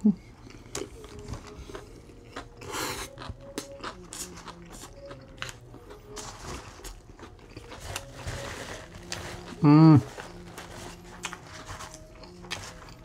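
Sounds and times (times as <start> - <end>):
food crunching: 0.2 - 13.0
wet chewing and smacking: 0.3 - 6.2, 6.8 - 8.2.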